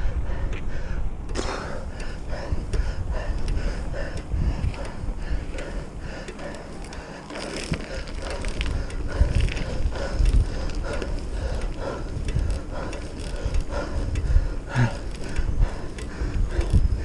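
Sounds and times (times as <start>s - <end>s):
tyres rumbling: 0.0s - 17.0s
wind: 0.0s - 17.0s
bicycle chain and frame rattling: 4.6s - 17.0s.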